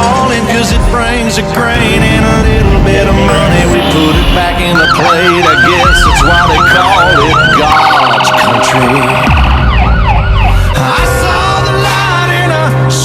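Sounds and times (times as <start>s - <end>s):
steady blaring tone: 1.8s - 10.5s
truck engine running: 1.8s - 10.7s
fire engine siren: 1.8s - 11.8s.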